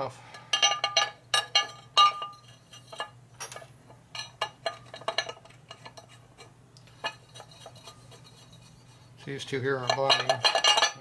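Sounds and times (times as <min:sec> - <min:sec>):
metal tools clinking: 0:00.5 - 0:06.2, 0:09.7 - 0:11.0.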